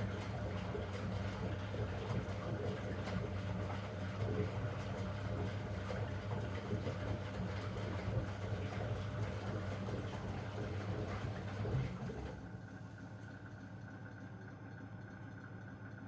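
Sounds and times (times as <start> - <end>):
washing machine drum humming: 0.0 - 12.6.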